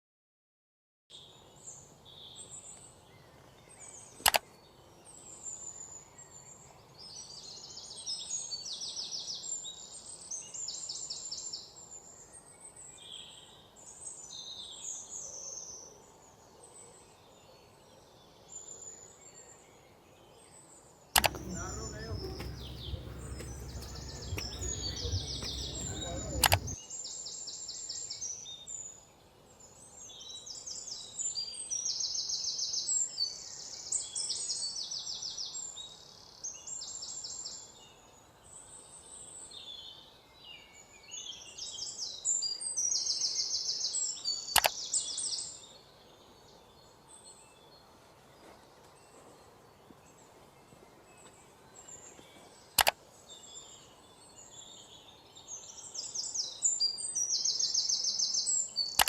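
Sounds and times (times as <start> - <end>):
sharp clicks: 21.2 - 26.8
small birds chirping: 21.2 - 26.8.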